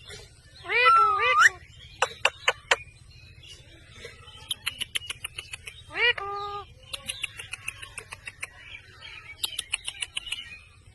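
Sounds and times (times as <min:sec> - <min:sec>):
parrot call: 0:00.6 - 0:01.6.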